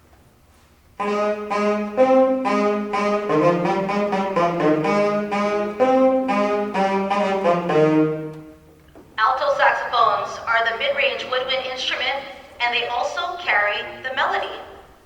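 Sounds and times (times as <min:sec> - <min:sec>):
tenor saxophones playing: 0:01.0 - 0:11.2.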